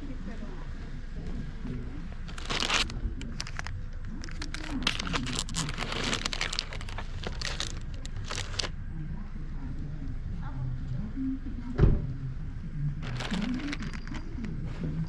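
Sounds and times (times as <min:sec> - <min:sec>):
faint murmuring voices: 0:00.0 - 0:15.0
crinkling and rustling: 0:02.1 - 0:08.7, 0:13.0 - 0:15.0.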